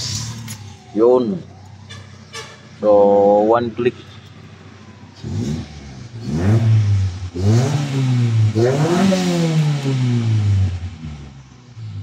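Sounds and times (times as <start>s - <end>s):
car engine revving: 3.6s - 12.0s.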